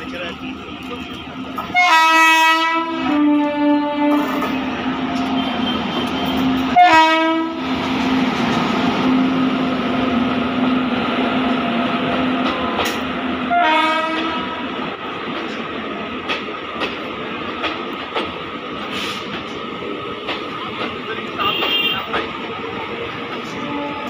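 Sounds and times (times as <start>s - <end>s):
train passing at speed: 0.0s - 24.0s
locomotive horn blasts: 1.0s - 7.6s, 13.5s - 14.6s, 21.4s - 22.1s, 23.6s - 24.0s.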